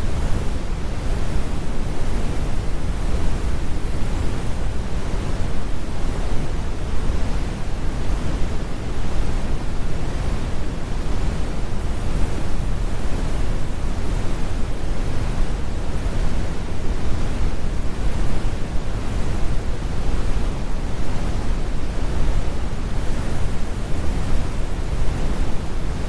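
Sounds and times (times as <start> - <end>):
brown noise rumble: 0.0 - 26.0.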